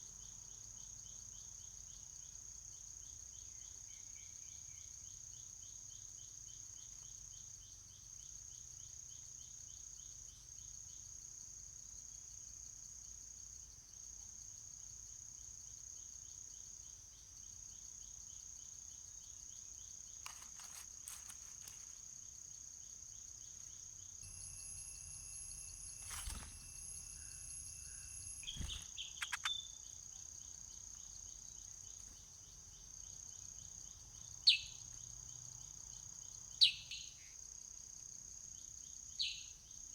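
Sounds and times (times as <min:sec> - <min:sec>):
high-pitched insect chorus: 0:00.0 - 0:39.9
fast pulsing insect trill: 0:16.0 - 0:37.0
clicks: 0:28.2 - 0:29.6.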